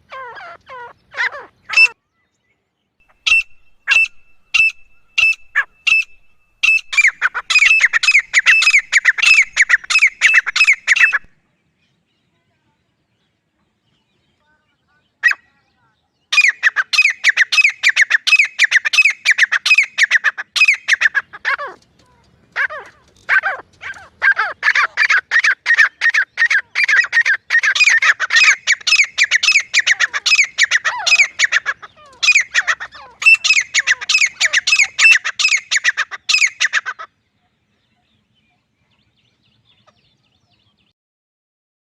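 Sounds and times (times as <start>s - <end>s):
bird harsh squawking calls: 0.0s - 2.4s, 3.1s - 11.3s, 16.3s - 38.3s.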